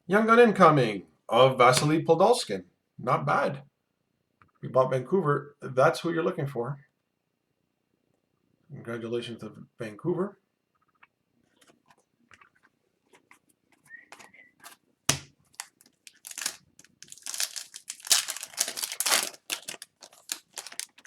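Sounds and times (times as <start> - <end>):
wrapper tearing and crinkling: 14.6 - 21.0.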